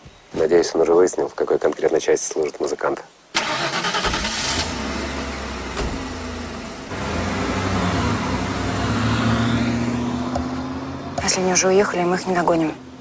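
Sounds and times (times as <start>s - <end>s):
car engine revving: 3.4s - 13.0s.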